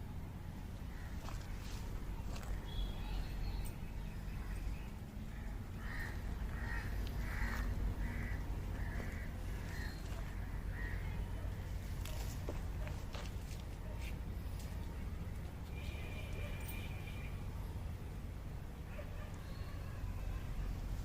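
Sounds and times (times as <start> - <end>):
steady low rumble: 0.0 - 15.8
crow cawing: 5.3 - 11.2.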